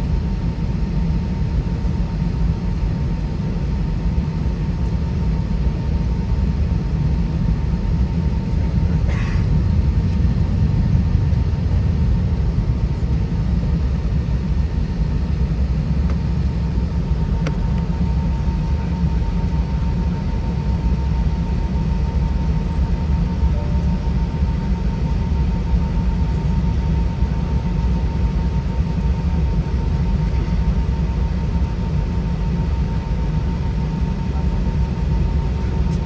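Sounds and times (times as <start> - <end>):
airplane cabin rumble: 0.0 - 36.0
click: 17.4 - 17.9.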